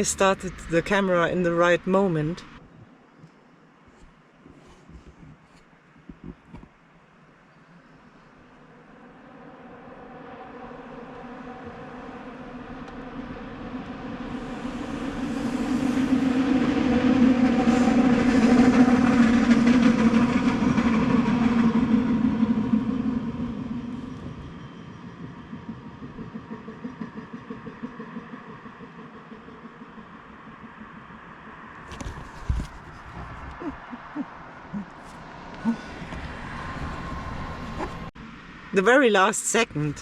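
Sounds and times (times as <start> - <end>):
train passing rumble: 0.0 - 3.1, 6.9 - 40.0
clatter of train wheels: 14.6 - 33.3.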